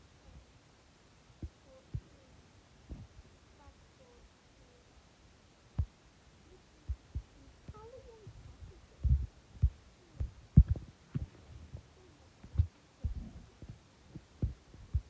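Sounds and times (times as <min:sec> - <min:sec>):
dull low thumps: 0:06.9 - 0:15.0.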